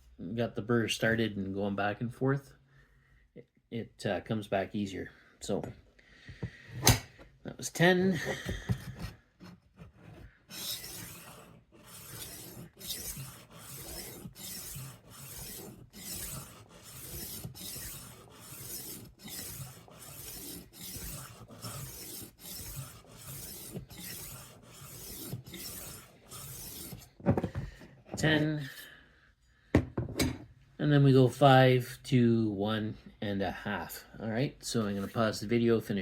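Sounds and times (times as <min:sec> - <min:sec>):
knife sharpener rasping on blade: 0:10.5 - 0:27.1.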